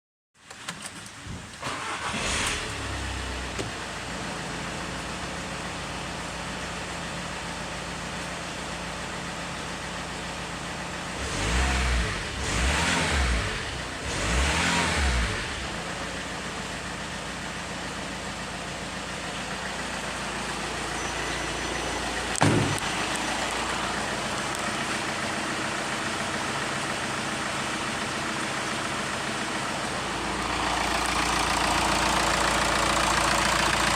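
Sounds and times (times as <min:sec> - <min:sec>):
van engine starting and idling: 0:00.5 - 0:33.9
engine revving: 0:01.6 - 0:03.6, 0:11.1 - 0:15.9.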